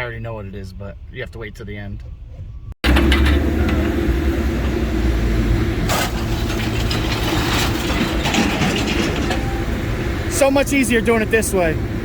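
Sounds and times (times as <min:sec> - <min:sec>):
scrap metal clanking and rattling: 0:02.8 - 0:04.8, 0:05.8 - 0:09.9.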